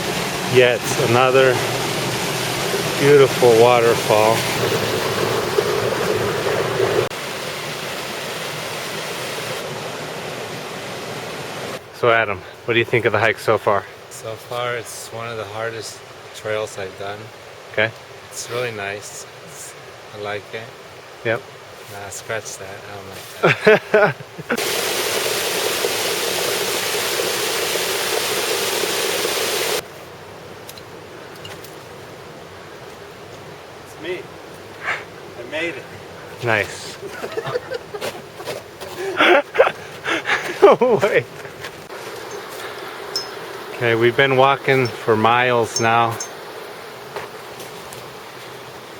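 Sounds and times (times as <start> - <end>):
waterfall rushing: 0.0 - 11.9, 24.5 - 29.8, 39.0 - 48.9.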